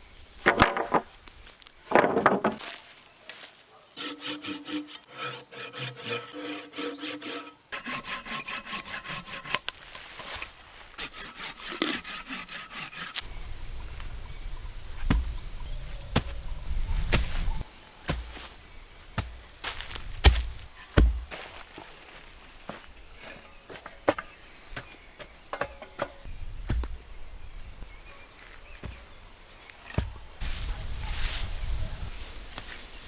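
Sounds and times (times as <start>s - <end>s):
hand saw cutting wood: 4.0s - 13.3s
sharp knocks and low thuds: 15.0s - 17.5s, 19.2s - 21.5s, 24.1s - 27.0s.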